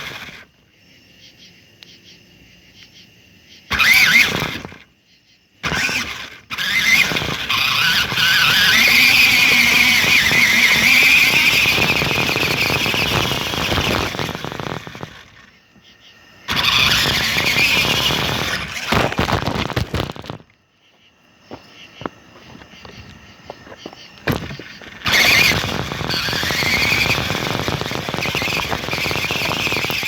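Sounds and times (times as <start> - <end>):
toy car motor whining: 0.0 - 0.5, 3.7 - 4.9, 5.6 - 15.6, 16.5 - 20.4, 24.2 - 30.0
rattle: 0.0 - 0.6, 3.7 - 4.9, 5.6 - 15.6, 16.4 - 20.6, 23.7 - 30.0.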